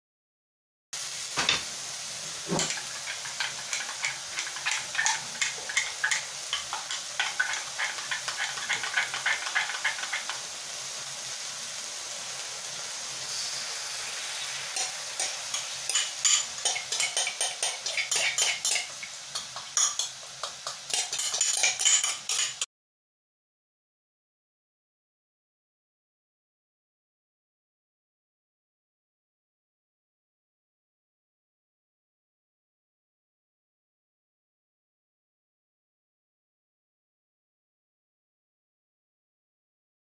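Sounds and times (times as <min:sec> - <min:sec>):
steak and onion sizzling in a wok: 0:01.0 - 0:22.7.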